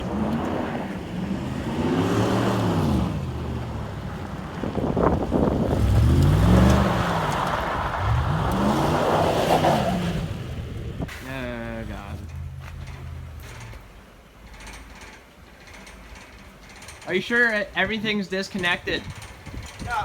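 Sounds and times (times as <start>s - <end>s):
pickup truck engine revving: 0.0s - 15.0s.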